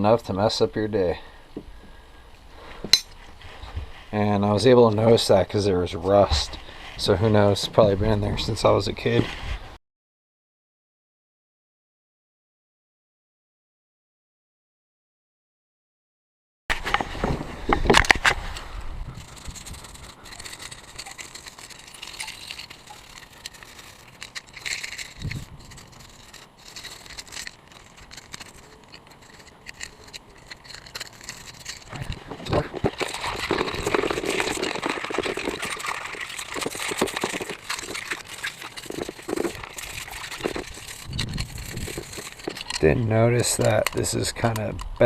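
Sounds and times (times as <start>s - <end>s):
rustling: 1.8s - 9.8s, 16.7s - 44.6s
clicks knocks and rattles of parts: 19.4s - 45.0s.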